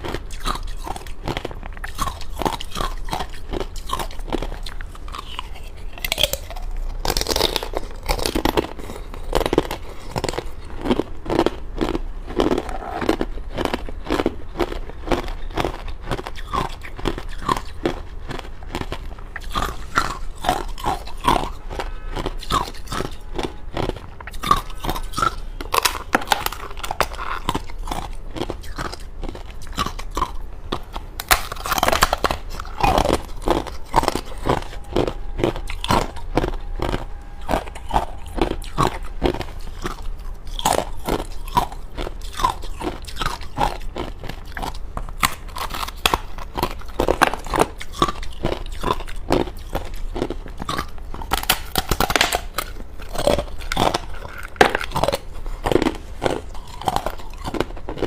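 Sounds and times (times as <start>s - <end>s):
crunching frozen ice: 0.0s - 58.0s.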